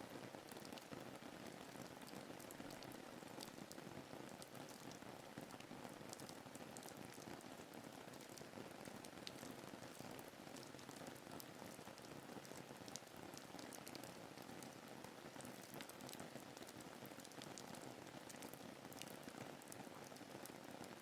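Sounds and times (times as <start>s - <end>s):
rain pattering: 0.0s - 21.0s
sharp raindrop ticks: 15.4s - 20.6s.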